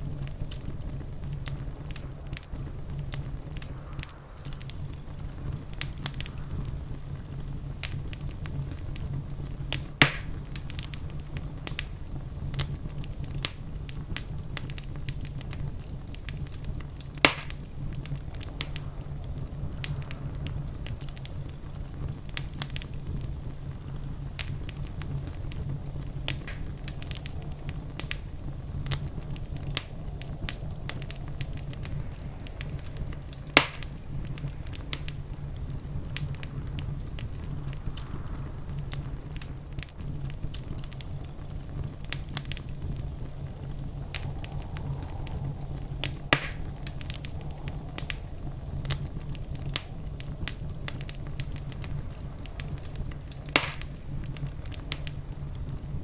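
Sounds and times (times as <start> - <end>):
wood fire crackling: 0.0 - 56.0
sharp loud fire pop: 10.0 - 10.4, 17.2 - 17.6, 33.6 - 34.0, 46.0 - 46.7, 53.6 - 53.9.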